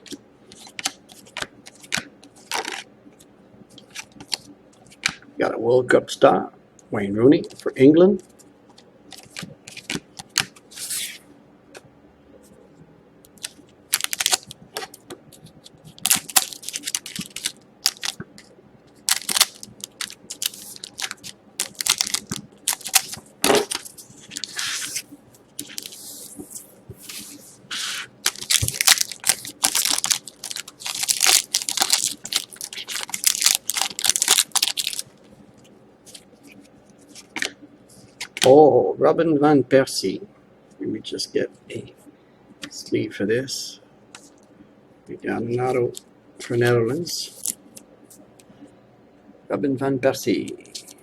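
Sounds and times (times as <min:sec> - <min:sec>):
foil wrappers crinkling and tearing: 0:00.5 - 0:02.8, 0:13.4 - 0:15.0, 0:15.9 - 0:18.2, 0:19.0 - 0:26.2, 0:28.2 - 0:35.2.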